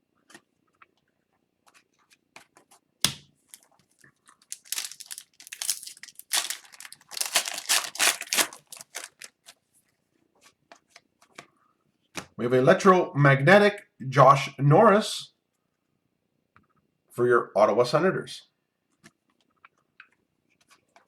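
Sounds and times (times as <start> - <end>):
foil wrapper tearing and crinkling: 3.1 - 9.6
foil wrapper snap: 4.4 - 9.6.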